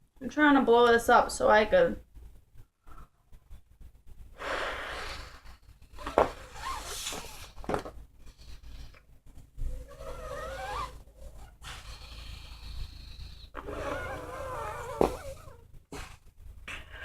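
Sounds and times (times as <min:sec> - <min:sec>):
person blowing in breathy gusts: 0:04.3 - 0:07.6.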